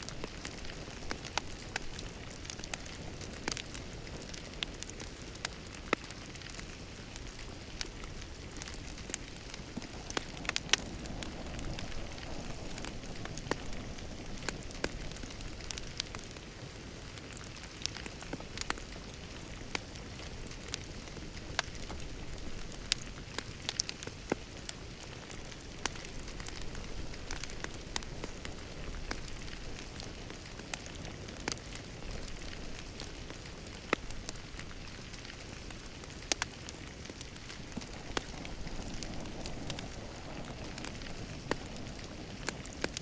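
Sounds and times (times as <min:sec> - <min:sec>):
low rush of burning: 0:00.0 - 0:43.0
wood fire crackling and popping: 0:00.0 - 0:43.0.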